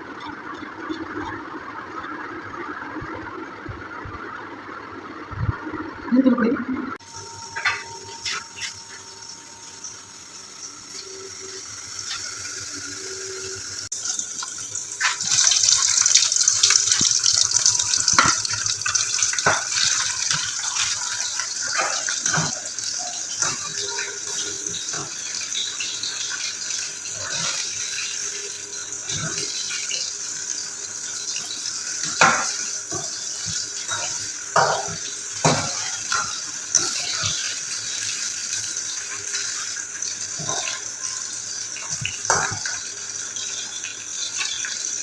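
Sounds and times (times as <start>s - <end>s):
tap water running into sink: 29.0s - 45.0s.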